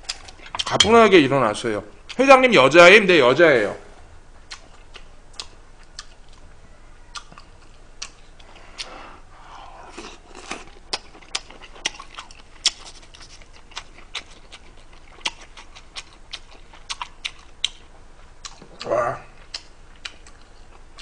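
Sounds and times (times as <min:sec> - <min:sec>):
chewing: 0:00.0 - 0:00.8, 0:04.5 - 0:06.4, 0:07.1 - 0:21.0.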